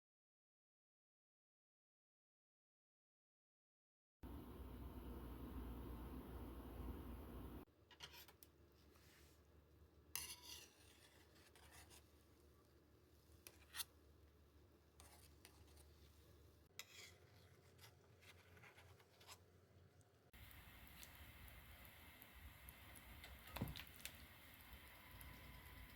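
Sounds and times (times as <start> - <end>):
light rubbing or scraping: 10.2 - 12.2, 13.4 - 14.0, 15.0 - 19.4.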